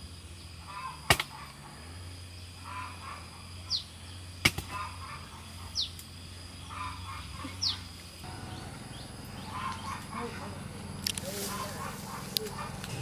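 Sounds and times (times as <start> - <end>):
soft chattering bird calls: 6.6 - 13.0.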